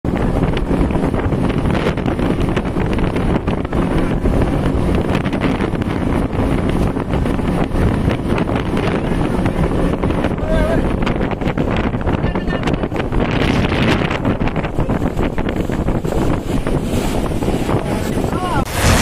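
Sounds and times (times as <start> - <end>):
wind buffeting microphone: 0.0 - 19.0
speedboat outboard motors: 0.1 - 19.0.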